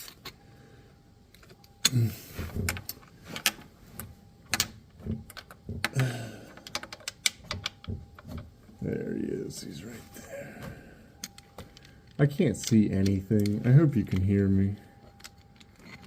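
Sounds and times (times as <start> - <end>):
hand tools clicking and clinking: 15.0 - 16.0.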